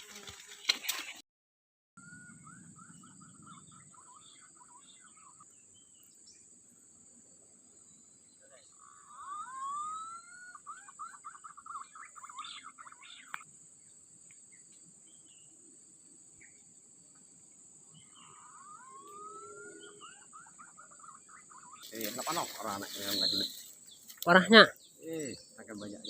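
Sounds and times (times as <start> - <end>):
bird whistling call: 8.9 - 13.4, 18.2 - 23.7
high insect drone: 12.5 - 20.4, 21.8 - 26.0.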